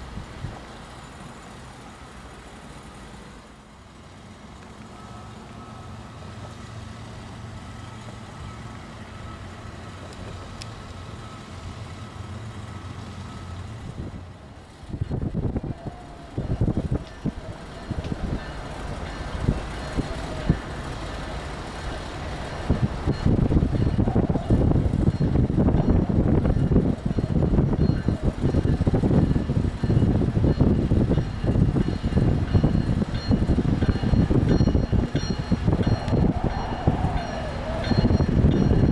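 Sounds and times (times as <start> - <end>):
diesel locomotive engines droning: 0.0 - 38.9
freight train wheels rumbling: 0.0 - 38.9
wind buffeting microphone: 14.8 - 38.9.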